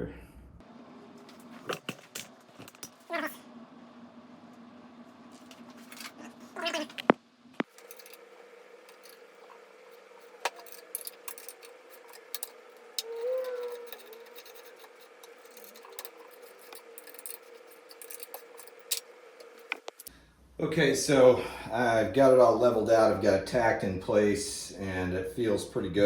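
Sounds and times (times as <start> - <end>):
faint steady hum: 0.0 - 26.0
metal parts clicking: 7.6 - 8.2, 8.9 - 20.1.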